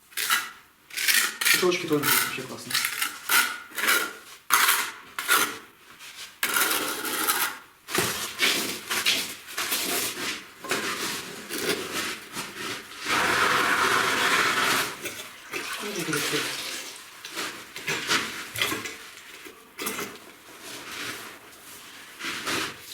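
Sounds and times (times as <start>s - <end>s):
hand tool scraping masonry: 0.1s - 5.6s, 6.3s - 15.3s.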